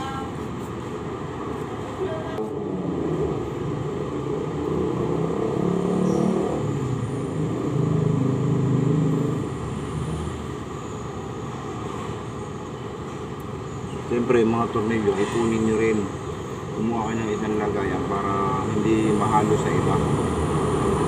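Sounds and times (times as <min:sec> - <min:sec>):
vehicle engine passing by: 0:02.4 - 0:10.5.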